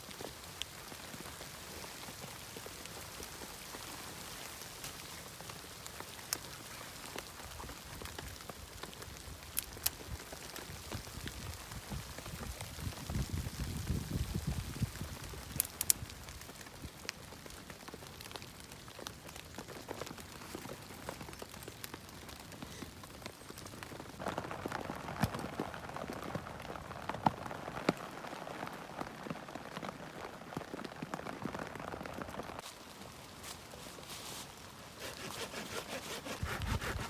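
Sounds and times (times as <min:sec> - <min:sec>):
patter of small ticks and taps: 0:15.5 - 0:22.0.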